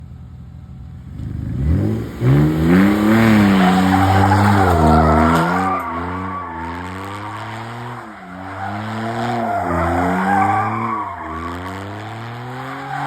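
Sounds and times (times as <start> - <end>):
car engine revving: 1.0 - 13.0
tyres squealing: 3.0 - 13.0.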